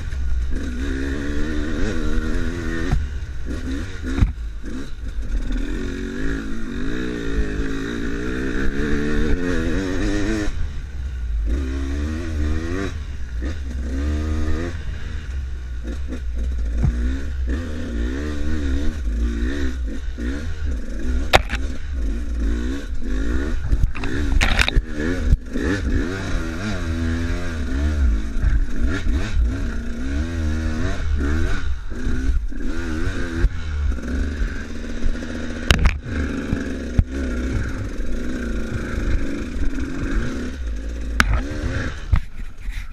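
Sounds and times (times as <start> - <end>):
motorcycle engine revving: 0.0 - 42.9
sharp knocks and clatters: 21.2 - 21.8.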